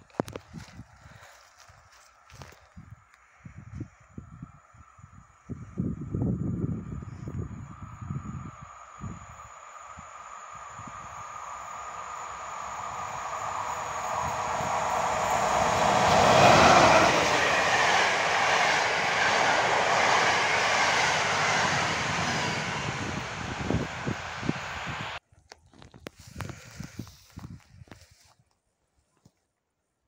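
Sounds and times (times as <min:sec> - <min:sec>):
electric train passing: 0:04.5 - 0:25.2.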